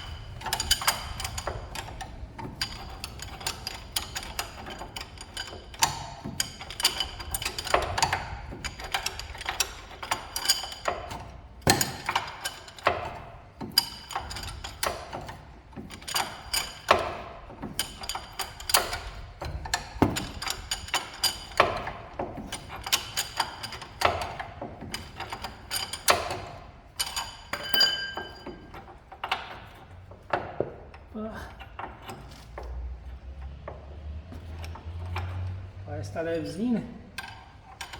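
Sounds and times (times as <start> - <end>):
hand tools clinking on steel: 0.0 - 29.9.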